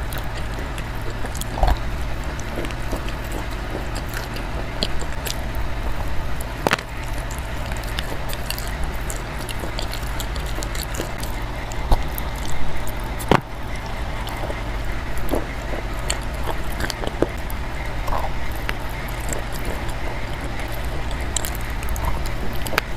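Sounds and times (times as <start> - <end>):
chalk being chewed: 0.0 - 22.9
steady low hum: 0.0 - 22.9.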